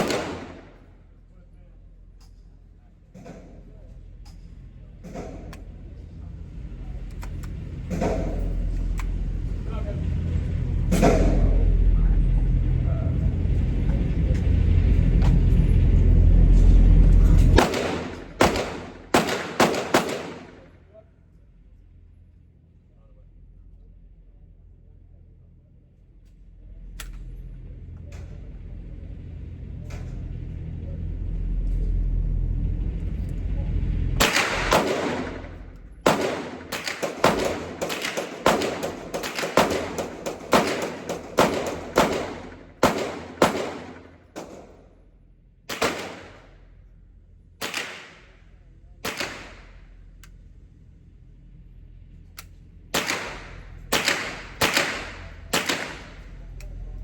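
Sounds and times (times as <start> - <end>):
pistol shots: 0.0 - 0.9, 17.6 - 20.7, 34.2 - 44.8, 45.7 - 46.6, 47.6 - 48.4, 49.0 - 49.8, 52.9 - 56.5
low rumble: 0.0 - 57.0.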